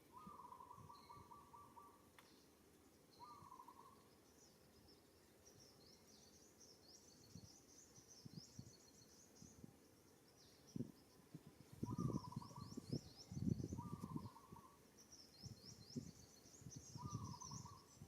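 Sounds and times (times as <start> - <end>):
buzzy bird trill: 3.2 - 4.6, 11.1 - 18.0
high thin bird chirping: 11.8 - 14.8.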